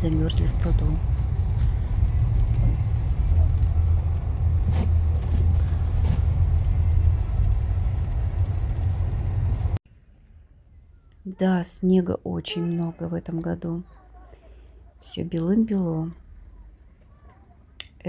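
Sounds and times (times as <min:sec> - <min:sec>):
car engine rumble: 0:00.0 - 0:11.2
road noise: 0:00.0 - 0:18.0.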